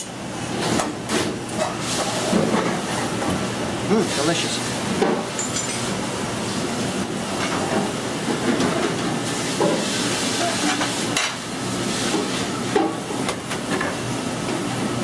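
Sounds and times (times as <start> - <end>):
utensils clinking against pan: 5.4 - 5.9
pasta sizzling in a pan: 9.3 - 12.6.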